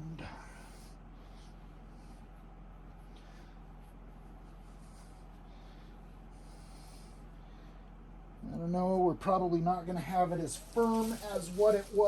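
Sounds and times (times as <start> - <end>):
steady low hum: 0.0 - 12.0
soft rustling swishes of stuffing: 1.3 - 7.3, 10.2 - 12.0.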